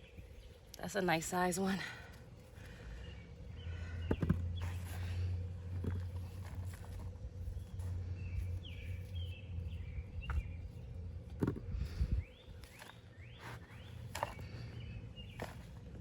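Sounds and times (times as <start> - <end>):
low steady rumble: 0.0 - 16.0
hands digging through soil: 2.2 - 16.0
bird chirping: 7.5 - 11.0, 12.0 - 15.8.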